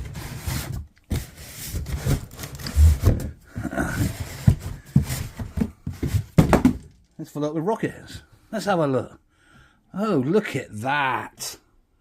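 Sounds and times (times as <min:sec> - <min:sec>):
cardboard and wood scraping: 0:00.0 - 0:06.9.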